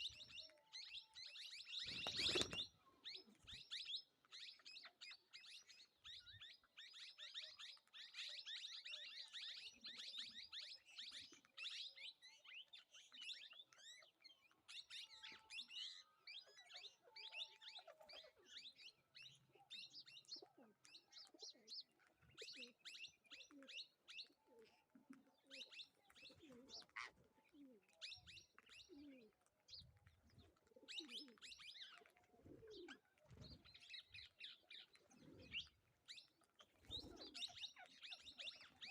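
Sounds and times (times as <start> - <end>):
birds chirping: 0.0 - 38.9
low cooing calls: 14.9 - 29.4, 30.7 - 36.2, 36.8 - 38.9.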